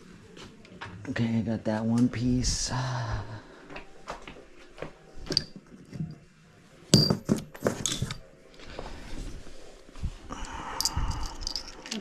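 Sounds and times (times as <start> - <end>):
metal bicycle parts clinking: 7.0 - 8.2, 10.8 - 12.0.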